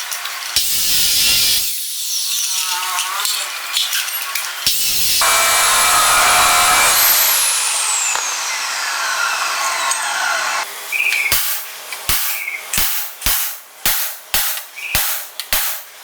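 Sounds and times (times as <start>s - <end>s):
power tool motor whine: 4.7s - 10.7s
sharp knock: 11.3s - 15.9s.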